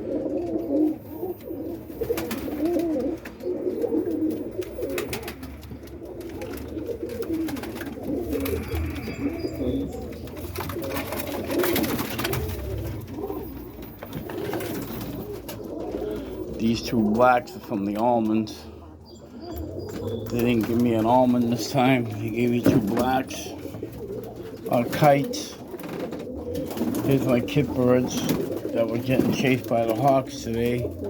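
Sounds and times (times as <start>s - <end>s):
pigeons cooing: 0.0s - 31.0s
clicks and rustles: 0.3s - 16.6s.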